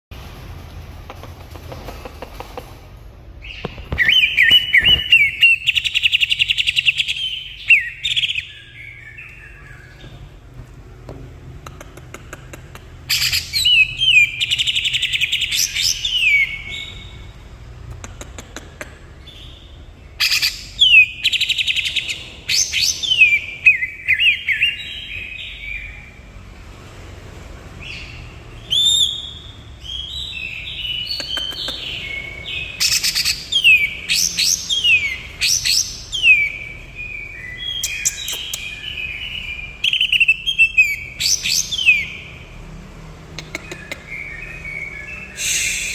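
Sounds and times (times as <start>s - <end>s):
bird singing rapid whistles: 3.4s - 10.0s, 13.1s - 17.2s, 20.2s - 26.0s, 28.6s - 42.4s, 44.0s - 45.9s.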